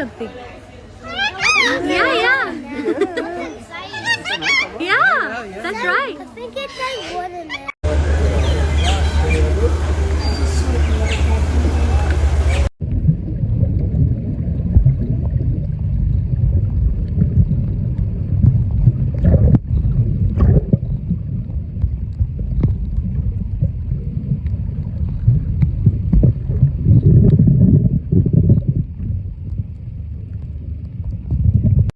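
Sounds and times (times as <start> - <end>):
wind buffeting microphone: 10.6 - 30.0.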